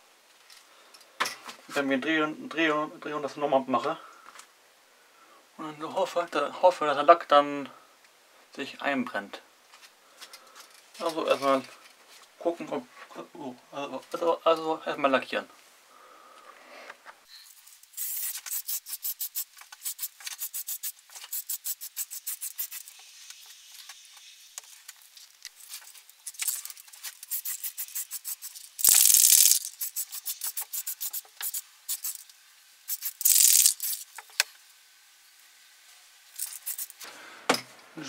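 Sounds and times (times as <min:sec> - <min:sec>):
spray can rattling: 0:17.6 - 0:24.3, 0:25.3 - 0:32.3, 0:32.9 - 0:34.3, 0:36.3 - 0:37.1
spray can hissing: 0:17.7 - 0:24.5, 0:26.2 - 0:34.2, 0:36.3 - 0:37.1.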